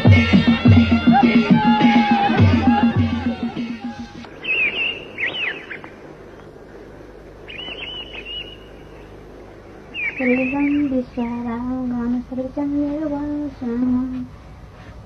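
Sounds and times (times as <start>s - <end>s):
folk music with drone: 0.0s - 12.1s
birds chirping: 0.0s - 15.0s
faint background hiss: 0.0s - 15.0s
woman singing: 10.2s - 14.3s.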